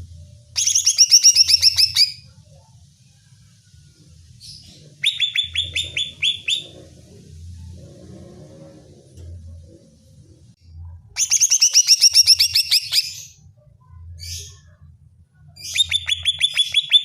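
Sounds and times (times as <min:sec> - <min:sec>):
low hum: 0:00.0 - 0:11.2
leafbird calling: 0:04.5 - 0:06.9.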